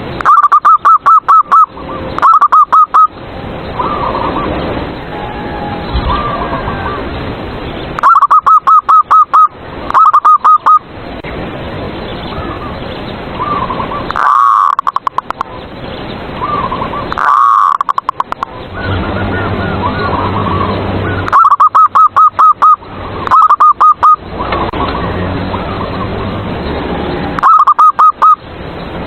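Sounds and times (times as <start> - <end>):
dove stuttering coos: 13.4 - 15.4, 16.4 - 26.4.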